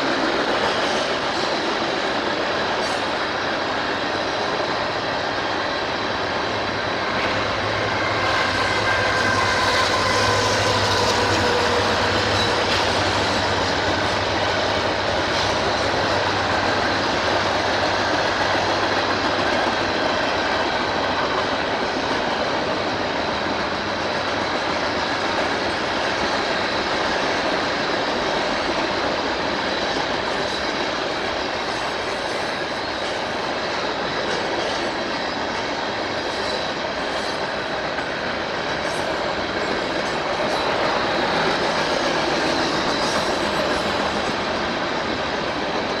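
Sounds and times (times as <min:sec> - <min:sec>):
train engine hum: 0:00.0 - 0:46.0
train wheels clattering on rails: 0:00.0 - 0:46.0.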